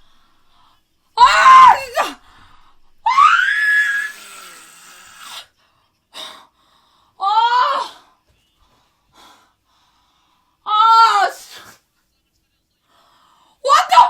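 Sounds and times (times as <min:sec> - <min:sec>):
young woman screaming: 0:01.2 - 0:02.2, 0:03.0 - 0:05.3, 0:07.2 - 0:08.0, 0:10.7 - 0:11.4, 0:13.7 - 0:14.0.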